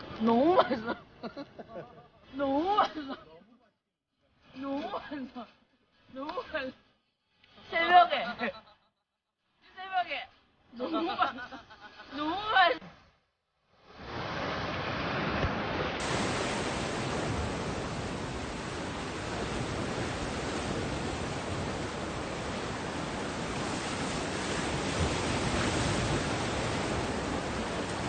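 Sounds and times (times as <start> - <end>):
sea surf washing on shore: 13.8 - 28.0.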